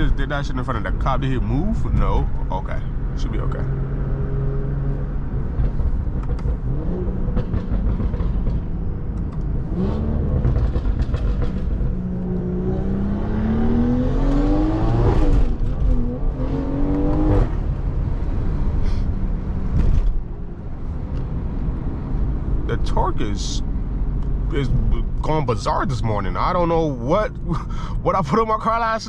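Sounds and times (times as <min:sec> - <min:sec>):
car engine accelerating hard: 0:00.0 - 0:28.1.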